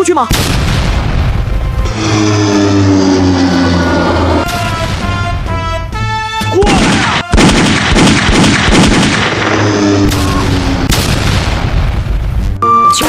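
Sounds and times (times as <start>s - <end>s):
background music: 0.0s - 7.5s, 12.0s - 13.0s
cartoon explosions: 0.3s - 12.4s
gunfire-like bangs: 6.7s - 12.1s.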